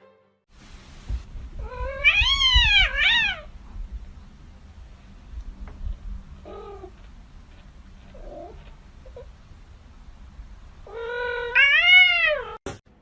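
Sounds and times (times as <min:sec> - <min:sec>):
cat meowing: 0:01.6 - 0:03.5, 0:10.8 - 0:12.6.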